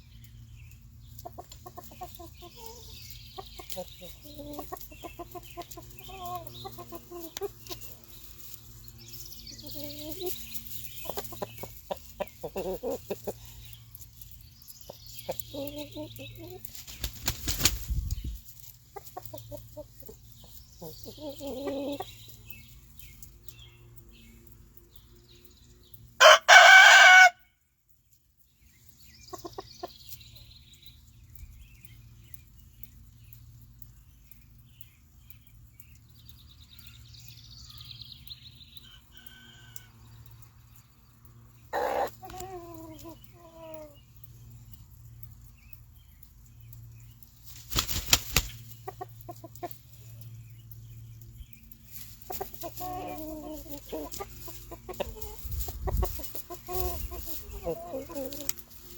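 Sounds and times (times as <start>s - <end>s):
chickens clucking: 0.7s - 23.4s, 29.2s - 30.6s, 38.8s - 46.4s, 47.1s - 58.9s
rooster crowing: 26.2s - 27.4s.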